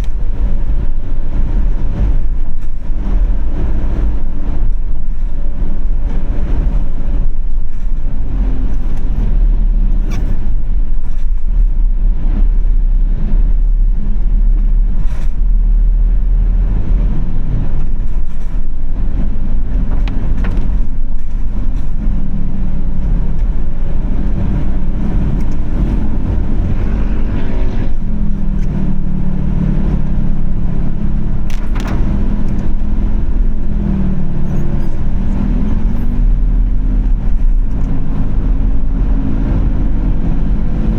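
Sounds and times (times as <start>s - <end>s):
car engine and road rumble: 0.0s - 40.9s.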